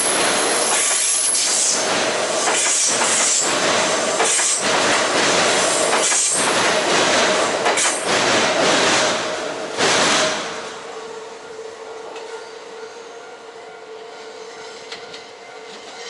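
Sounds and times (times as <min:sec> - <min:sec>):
train knocks: 0:00.0 - 0:10.9, 0:14.8 - 0:16.0
train wheels rushing on rails: 0:00.0 - 0:11.2.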